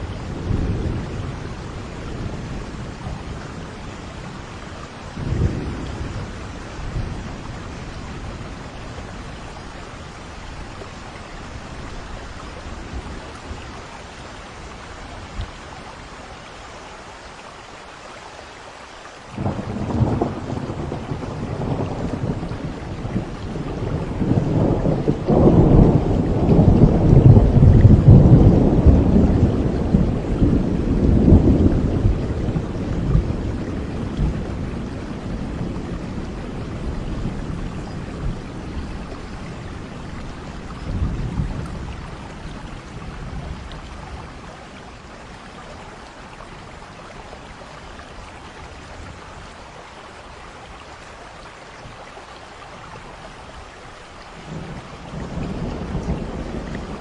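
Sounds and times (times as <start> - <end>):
steady rain: 0.0 - 57.0
thunder rumble: 19.4 - 44.6, 54.4 - 57.0.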